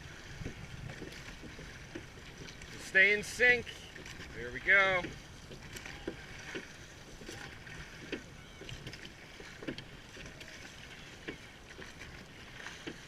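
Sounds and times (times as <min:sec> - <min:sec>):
oars clunking: 0:00.0 - 0:13.0
water washing: 0:00.0 - 0:13.0
wind: 0:00.0 - 0:13.0.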